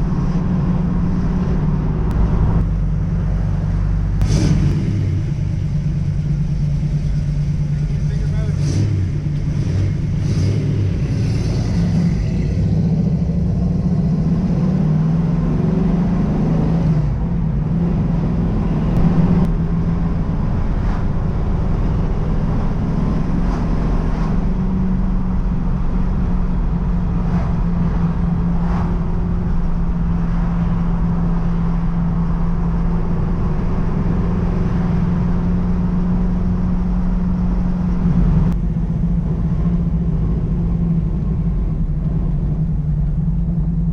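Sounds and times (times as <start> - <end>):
car engine drone: 0.0 - 43.9
road noise: 0.0 - 43.9.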